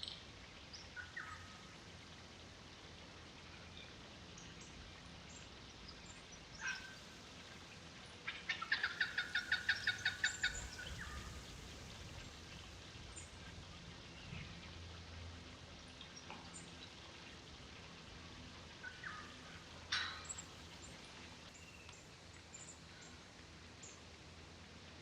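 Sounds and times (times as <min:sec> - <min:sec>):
bird chirping and rattling call: 0:08.3 - 0:12.7, 0:19.8 - 0:21.9.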